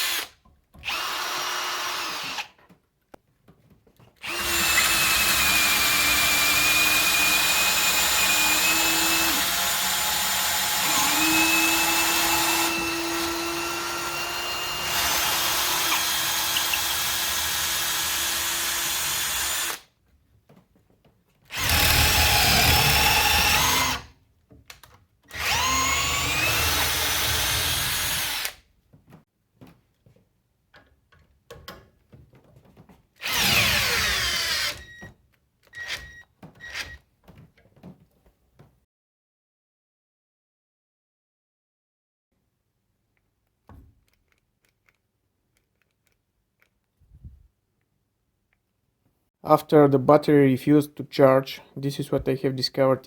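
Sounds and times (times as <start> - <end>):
cordless drill motor running: 0.0 - 2.5, 4.2 - 19.8, 21.5 - 24.0, 25.3 - 28.6, 33.2 - 35.0.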